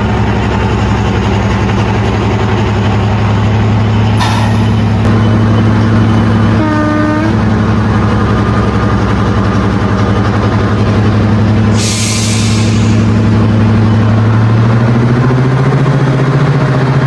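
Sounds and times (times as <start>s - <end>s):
diesel locomotive engines droning: 0.0s - 17.0s
air hissing: 4.1s - 5.1s, 11.7s - 13.3s
locomotive horn blast: 6.2s - 7.6s.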